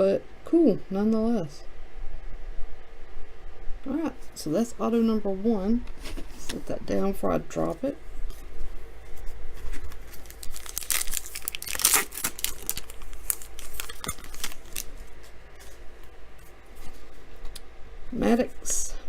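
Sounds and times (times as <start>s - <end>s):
handling of cards: 7.6s - 17.6s
card pack wrapper tearing: 9.7s - 15.0s.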